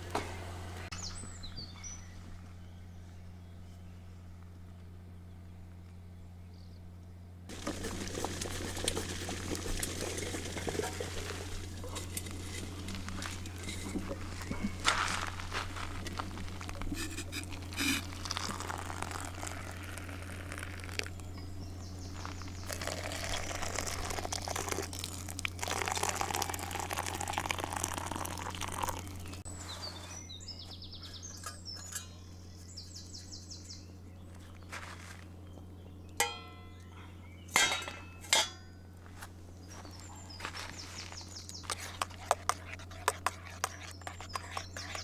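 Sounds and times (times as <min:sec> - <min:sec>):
steady low hum: 0:00.0 - 0:45.0
small birds trilling: 0:18.0 - 0:36.2, 0:39.5 - 0:45.0.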